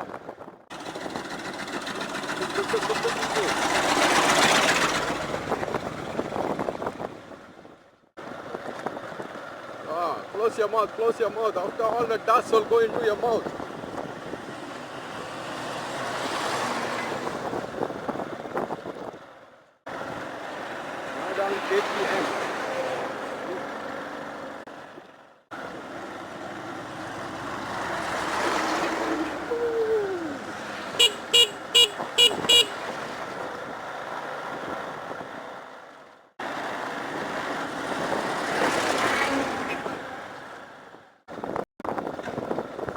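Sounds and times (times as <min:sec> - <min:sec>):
motorbike road noise: 0:00.0 - 0:42.9
wind on microphone: 0:04.6 - 0:07.8, 0:13.1 - 0:19.3, 0:41.3 - 0:42.9
vehicle horn honking: 0:31.0 - 0:32.8.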